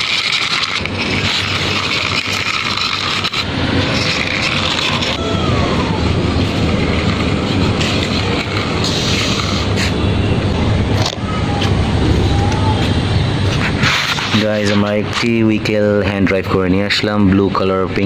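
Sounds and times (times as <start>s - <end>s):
brief falling whine: 11.2s - 13.6s.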